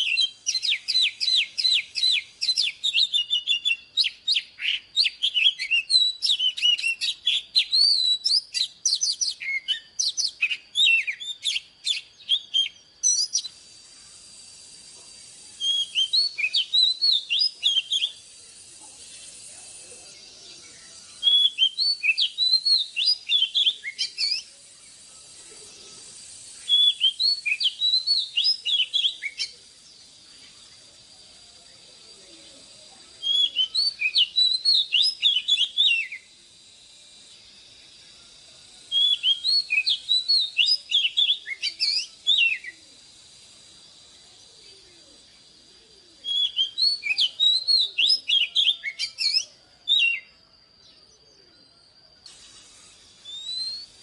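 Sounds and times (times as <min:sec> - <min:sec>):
bird singing whistled notes: 0:00.0 - 0:54.0
faint high hiss: 0:00.0 - 0:54.0.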